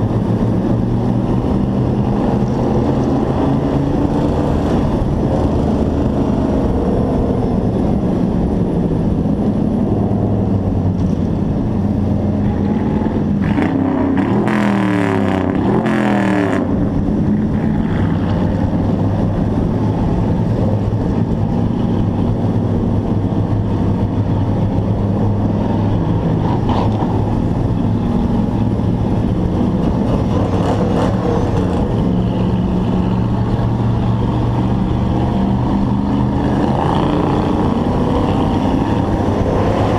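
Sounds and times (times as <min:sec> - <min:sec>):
hobby truck engine running hard: 0:16.6 - 0:39.9.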